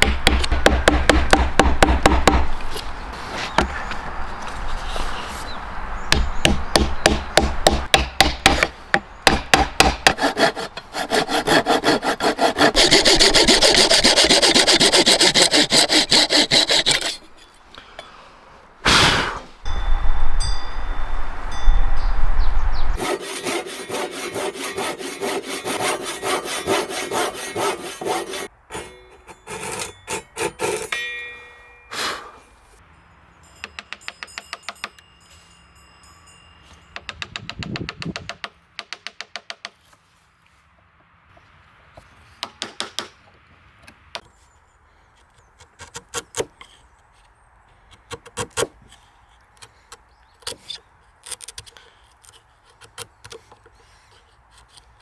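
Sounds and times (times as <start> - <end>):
handsaw sawing wood: 9.3 - 17.4, 23.0 - 28.9.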